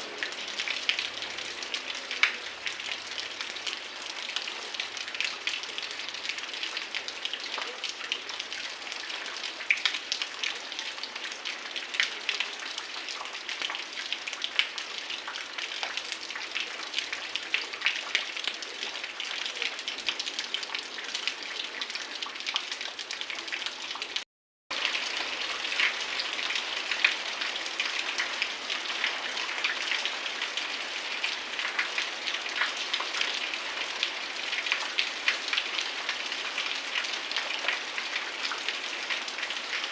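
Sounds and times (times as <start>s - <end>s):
heavy rain falling: 24.7s - 39.9s.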